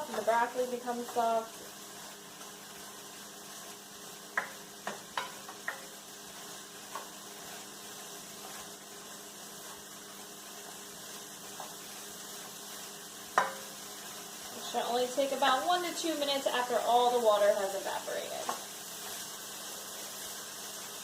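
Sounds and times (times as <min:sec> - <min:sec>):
vegetables sizzling in a pan: 0:00.0 - 0:21.0
utensil clicking against pan: 0:04.3 - 0:05.9.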